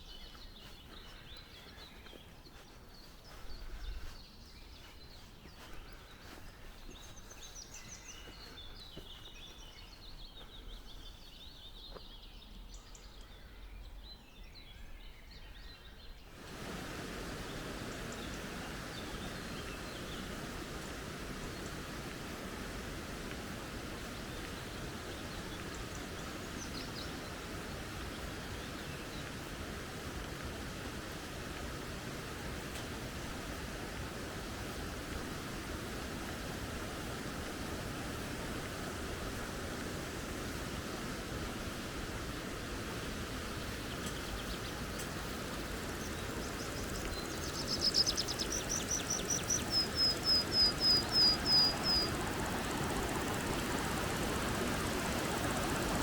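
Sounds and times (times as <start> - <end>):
songbird calling: 0.0 - 41.6, 43.0 - 56.0
creek flowing: 16.3 - 56.0
faint high bird chirps: 44.0 - 54.0.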